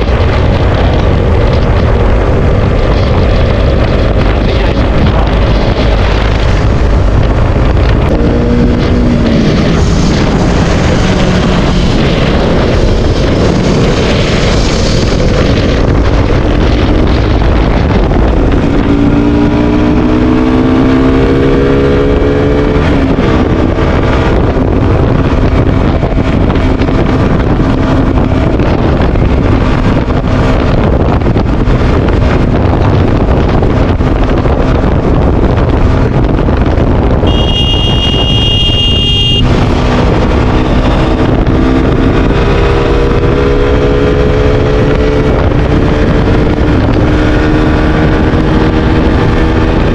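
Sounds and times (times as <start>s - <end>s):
motorcycle engine accelerating: 0.0s - 49.9s
wind rushing over microphone: 0.0s - 49.9s
horn sounding: 37.2s - 39.6s.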